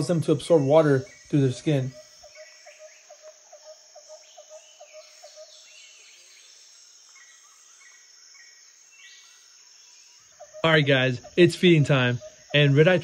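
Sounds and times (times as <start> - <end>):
high insect-like drone: 0.0 - 13.0
higher chirps: 10.2 - 13.0
animal chirping notes: 10.3 - 13.0.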